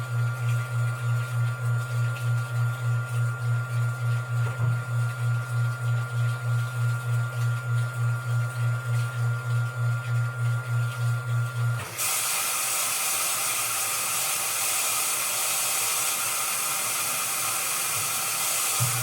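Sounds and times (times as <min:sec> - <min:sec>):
washing machine motor humming: 0:00.0 - 0:19.0
water rushing into machine: 0:11.8 - 0:19.0.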